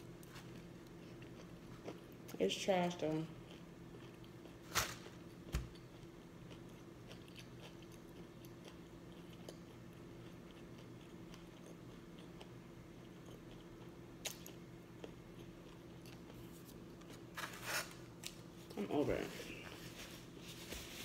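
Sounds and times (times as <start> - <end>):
faint close-up chewing: 0.5 - 2.4, 3.4 - 4.6, 5.8 - 17.2.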